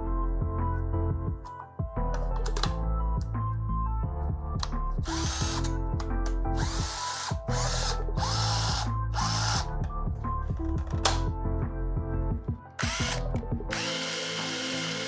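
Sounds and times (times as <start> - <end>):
background music: 0.0 - 15.0
hammer drill motor whining: 5.1 - 5.7, 6.6 - 9.6, 12.8 - 15.0.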